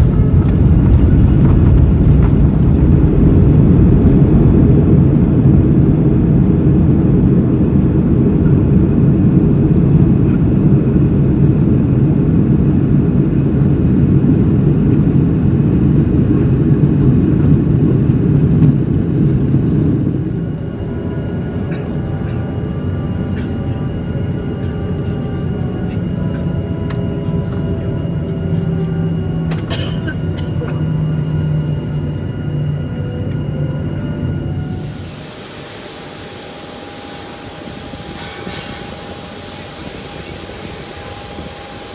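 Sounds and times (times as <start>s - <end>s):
airplane cabin engine rumble: 0.0s - 41.9s
faint steady tones: 17.2s - 41.9s.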